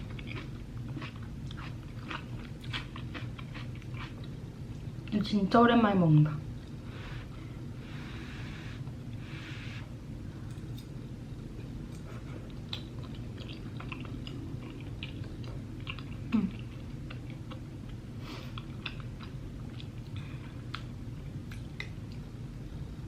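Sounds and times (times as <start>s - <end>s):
person chewing food: 0.0s - 5.1s, 11.6s - 22.3s
steady low hum: 0.0s - 23.0s.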